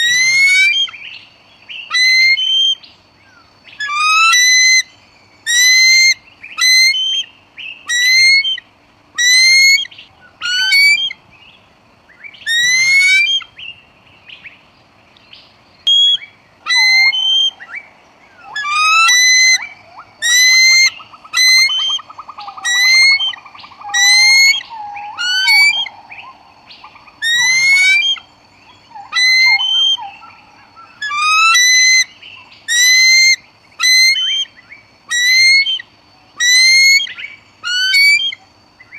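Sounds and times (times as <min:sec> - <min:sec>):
lower wavering bird call: 0:00.0 - 0:02.9, 0:03.7 - 0:11.2, 0:12.4 - 0:13.6, 0:15.8 - 0:38.9
bird high rising call: 0:00.0 - 0:08.6, 0:09.2 - 0:11.2, 0:12.2 - 0:13.7, 0:15.8 - 0:38.9.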